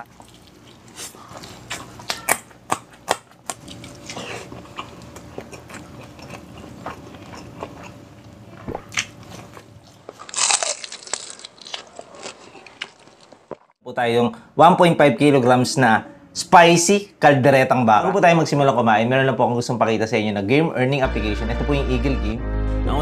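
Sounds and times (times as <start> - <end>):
person chewing close up: 0.0 - 13.7.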